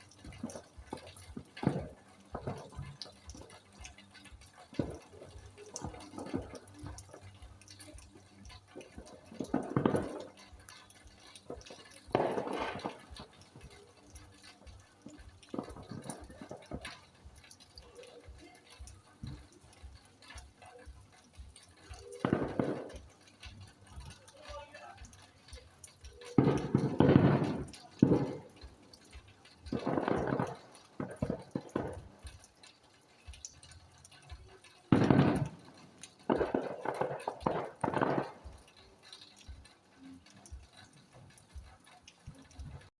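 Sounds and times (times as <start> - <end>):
muffled bursts: 0.0 - 42.9
rain dripping: 0.0 - 42.9.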